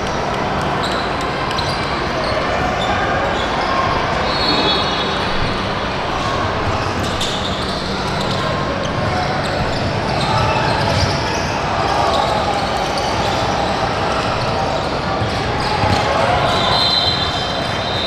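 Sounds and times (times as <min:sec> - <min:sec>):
background chatter: 0:00.0 - 0:18.0
basketball bouncing on court floor: 0:15.2 - 0:16.2.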